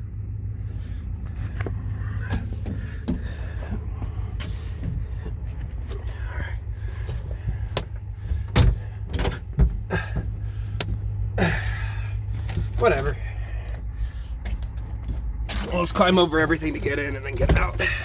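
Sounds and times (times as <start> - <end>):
diesel engine idling: 0.0 - 18.0
truck door thumps: 2.3 - 5.2, 7.0 - 11.1.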